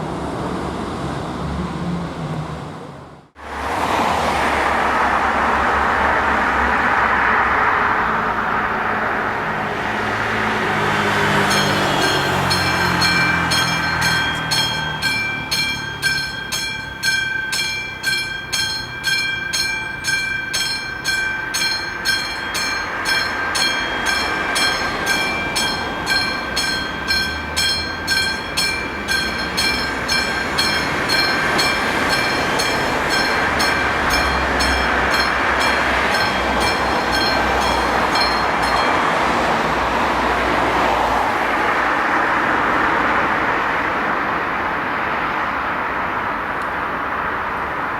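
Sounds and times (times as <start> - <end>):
train wheels on rails: 0.0 - 47.9
level crossing bell ringing: 11.3 - 39.5.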